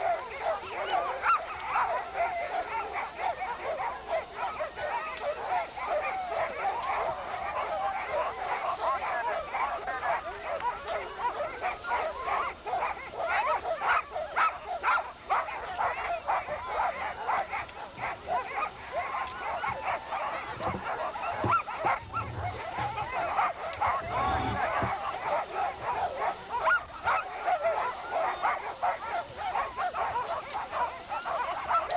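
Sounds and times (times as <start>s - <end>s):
sled dogs barking and yelping: 0.0s - 31.9s.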